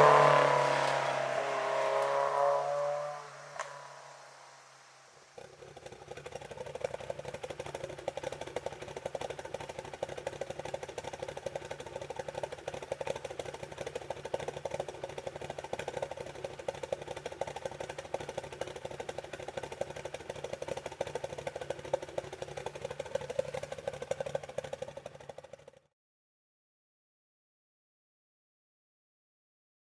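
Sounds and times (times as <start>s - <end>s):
car engine idling: 0.0s - 25.8s.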